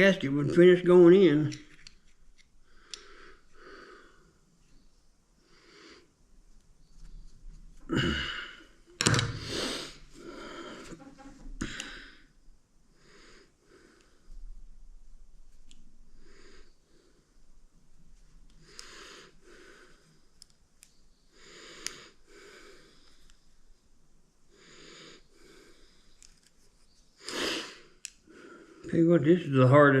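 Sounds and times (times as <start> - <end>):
man breathing hard: 7.9 - 11.0.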